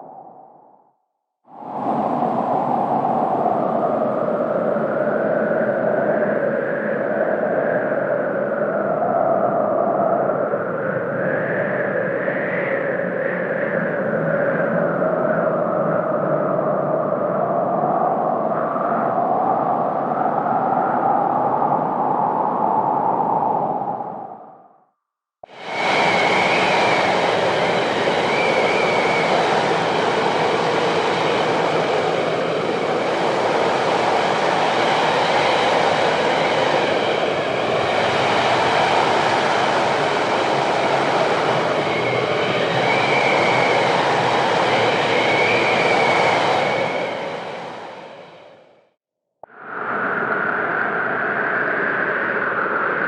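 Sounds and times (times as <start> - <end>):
blizzard wind blowing hard: 0.0 - 0.7, 1.5 - 24.6, 25.4 - 48.9, 49.5 - 53.0
thin wavering wind whistle: 25.4 - 48.8.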